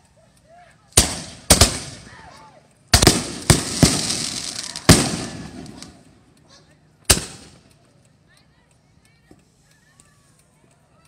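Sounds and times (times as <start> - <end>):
fireworks exploding: 1.0 - 2.1, 2.9 - 6.2, 7.1 - 7.6.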